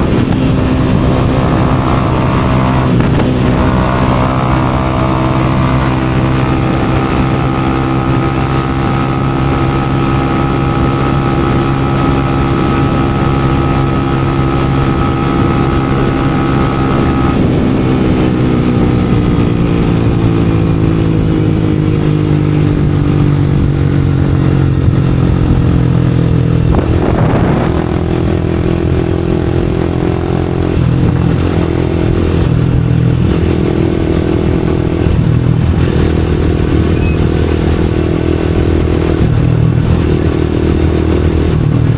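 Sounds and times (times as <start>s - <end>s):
exhaust pop: 0.0s - 5.4s
motorcycle engine revving: 0.0s - 41.9s.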